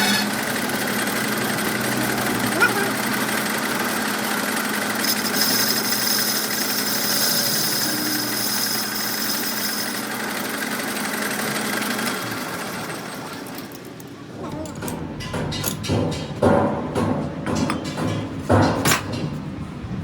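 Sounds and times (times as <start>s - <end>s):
machine motor humming: 0.0s - 14.1s.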